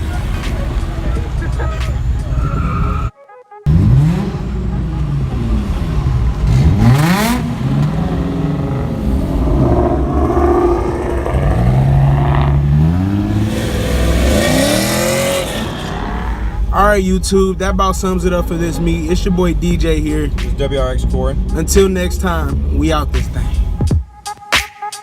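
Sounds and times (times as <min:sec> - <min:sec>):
car engine revving: 0:00.0 - 0:03.1, 0:03.7 - 0:23.9.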